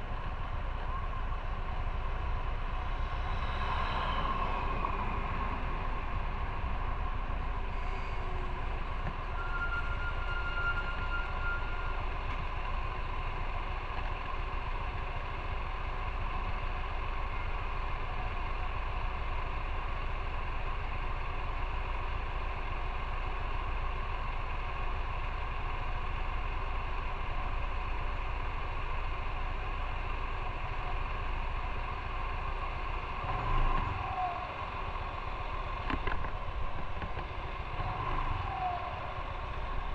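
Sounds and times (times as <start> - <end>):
road noise: 0.0 - 39.9
motorcycle running: 10.9 - 39.9.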